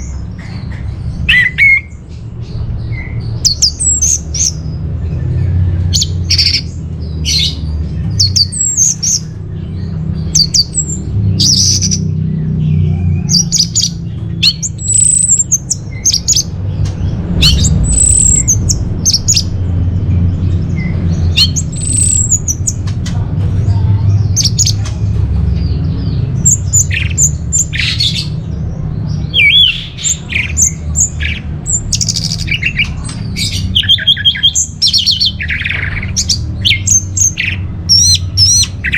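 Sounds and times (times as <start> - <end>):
steady low hum: 0.0 - 38.9
thrush singing: 0.0 - 38.9.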